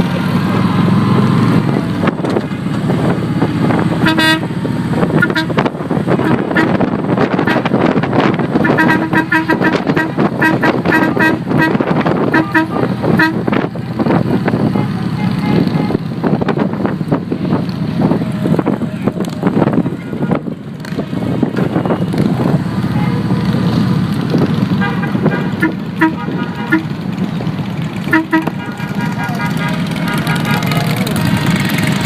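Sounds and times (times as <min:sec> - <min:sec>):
motorcycle engines running: 0:00.0 - 0:32.0
wind noise: 0:01.2 - 0:22.9
short horn toots: 0:04.0 - 0:04.5, 0:08.6 - 0:13.5, 0:24.8 - 0:26.9, 0:28.1 - 0:31.0.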